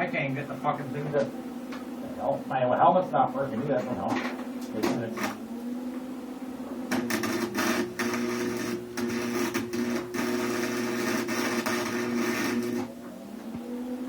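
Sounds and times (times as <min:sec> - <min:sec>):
welder humming: 0:00.0 - 0:14.0
welding arc crackling: 0:04.1 - 0:05.5, 0:06.9 - 0:13.1.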